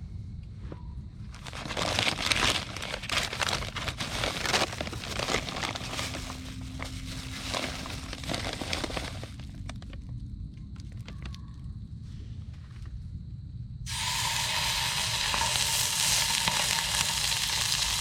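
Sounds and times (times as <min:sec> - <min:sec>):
food sizzling in a frying pan: 0:13.9 - 0:18.0.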